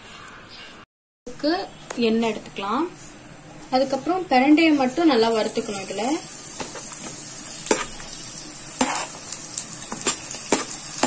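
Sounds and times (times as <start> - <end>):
stems sizzling in hot oil: 3.7 - 11.0.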